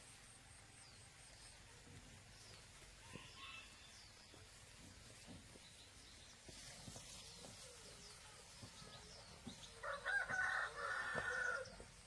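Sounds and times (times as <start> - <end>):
rooster crowing: 9.8 - 11.8.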